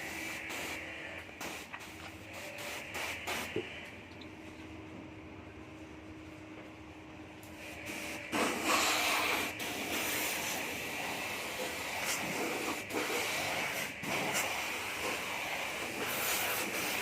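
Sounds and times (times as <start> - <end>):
hissing water spray: 7.8 - 17.0.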